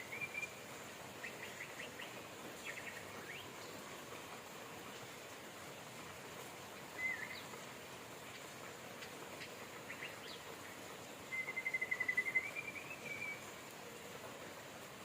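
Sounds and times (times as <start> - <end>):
birds calling: 0.0 - 3.8, 6.9 - 7.6, 8.3 - 10.5, 11.3 - 13.5
rain hiss: 0.0 - 15.0.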